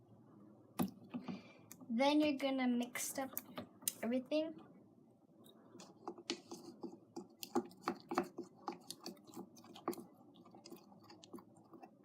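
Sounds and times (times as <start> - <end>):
utensil scraping a bowl: 5.8 - 12.0.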